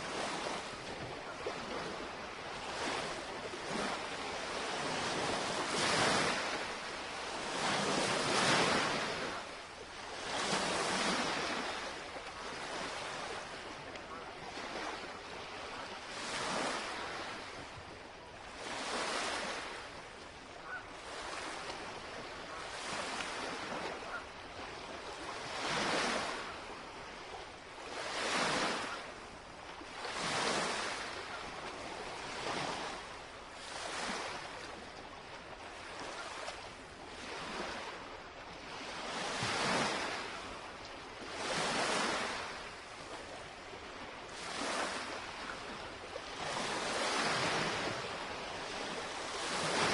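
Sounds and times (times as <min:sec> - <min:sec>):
lake waves lapping on shore: 0:00.0 - 0:49.9.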